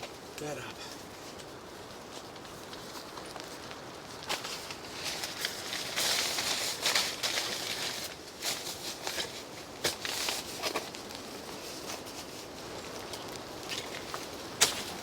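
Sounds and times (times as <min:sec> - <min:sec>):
bedding rustling: 0:04.3 - 0:12.9.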